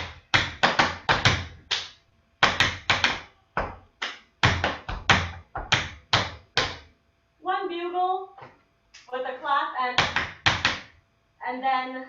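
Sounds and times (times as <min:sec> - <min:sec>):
tap shoes striking floor: 0:04.4 - 0:06.8.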